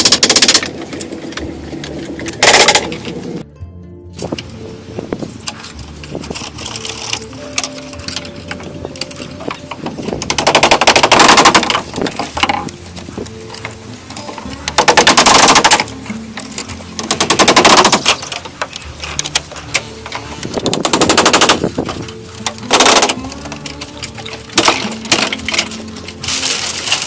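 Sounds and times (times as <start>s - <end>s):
rapid mechanical rattling: 0.0s - 3.4s, 9.9s - 12.7s, 14.7s - 16.2s, 16.9s - 27.0s
faint background music: 0.0s - 27.0s.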